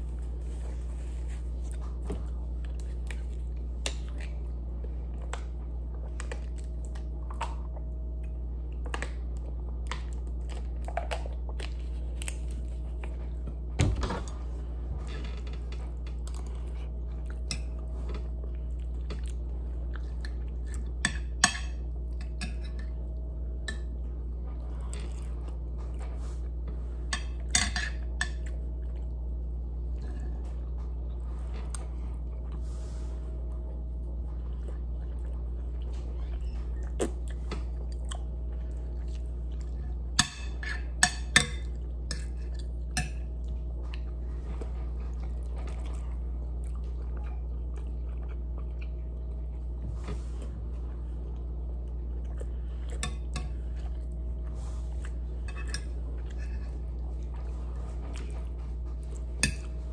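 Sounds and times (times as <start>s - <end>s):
steady low hum: 0.0s - 59.9s
person chewing: 33.6s - 40.2s, 41.6s - 59.9s.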